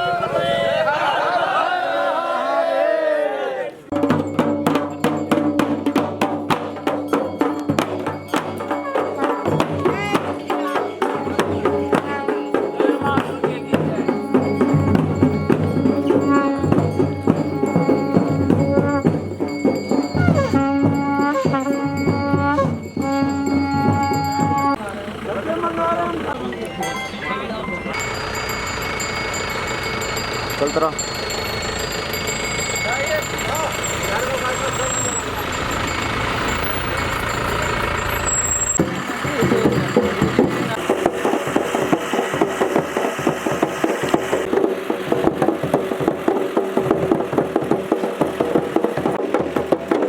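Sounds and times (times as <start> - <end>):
voices: 0.0 - 4.0, 6.4 - 45.4
fast drumming: 3.9 - 24.8, 38.8 - 50.0
held wind instrument tone: 7.4 - 24.8.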